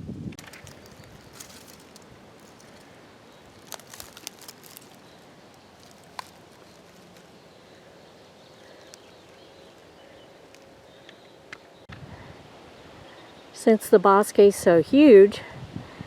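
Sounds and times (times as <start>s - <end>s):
steady low hiss: 0.0s - 16.0s
scattered clicks and crackles: 0.3s - 5.2s, 5.8s - 7.4s, 8.6s - 11.6s.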